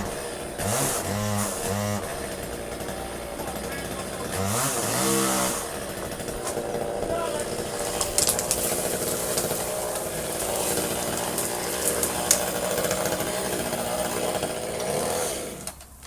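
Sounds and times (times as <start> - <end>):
chainsaw running: 0.0 - 16.0
sharp clicks: 7.4 - 9.7, 10.4 - 12.6.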